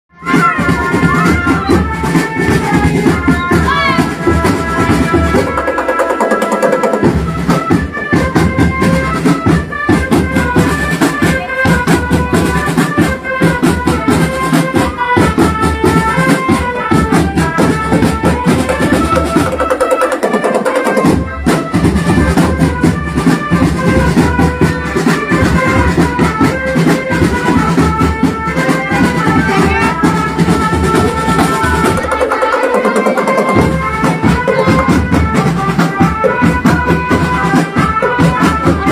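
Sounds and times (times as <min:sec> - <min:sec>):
marching drum band playing: 0:00.2 - 0:38.9
bass drum: 0:21.0 - 0:32.3.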